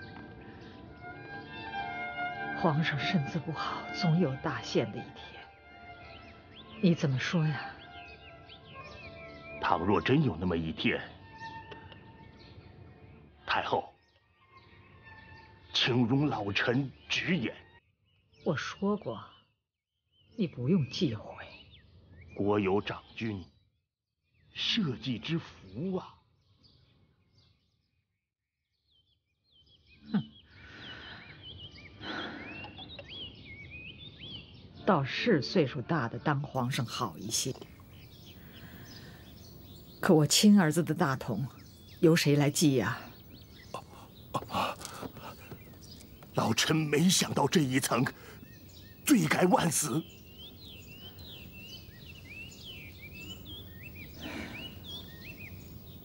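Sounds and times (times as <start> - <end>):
small birds chirping: 0.0 - 23.7, 24.3 - 28.1, 28.8 - 56.0
low falling voice murmur: 43.7 - 45.7.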